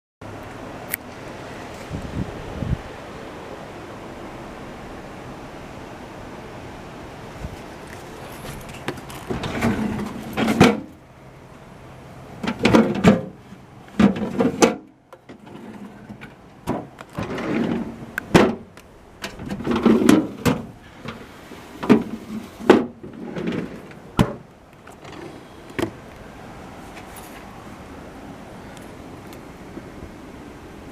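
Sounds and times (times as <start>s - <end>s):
refrigerator doors opening and shutting: 16.1s - 21.2s, 21.8s - 26.0s.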